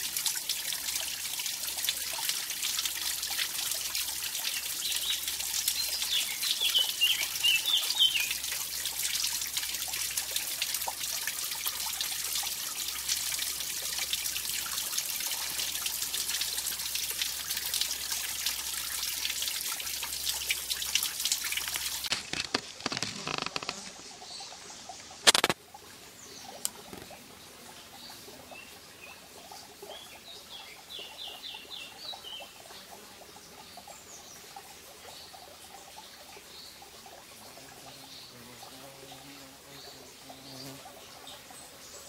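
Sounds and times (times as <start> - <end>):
stream splashing over waterfall: 0.0 - 24.4, 25.0 - 27.4
bird chirping: 5.8 - 8.3.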